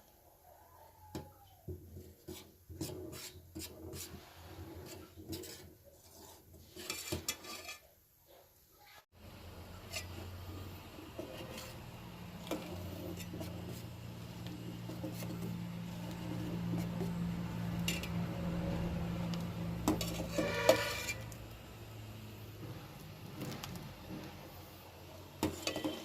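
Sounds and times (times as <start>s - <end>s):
loud clatter with ringing scrape: 12.4s - 18.9s, 19.8s - 21.4s, 25.4s - 26.0s
utensils clinking against pot: 25.4s - 26.0s.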